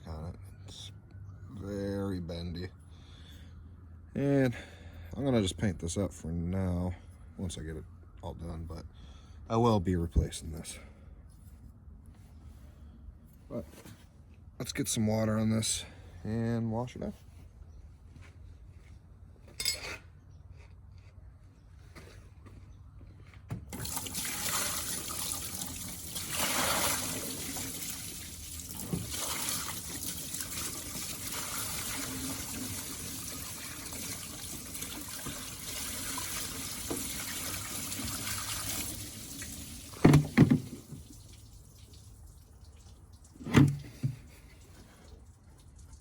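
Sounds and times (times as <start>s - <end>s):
water splashing on metal: 23.7s - 46.0s.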